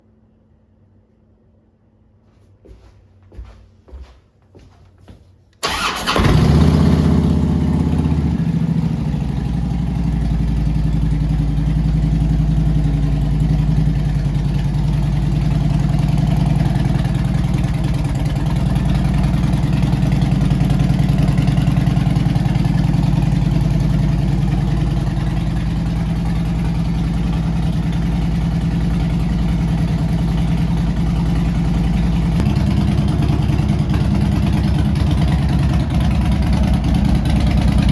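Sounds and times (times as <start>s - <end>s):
motorcycle engine cranking: 5.6s - 7.4s
motorcycle engine idling lumpily: 5.6s - 37.9s.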